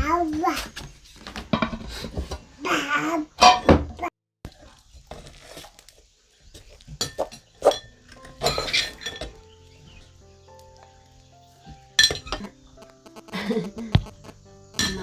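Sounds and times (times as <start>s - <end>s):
soft background music: 7.3s - 15.0s.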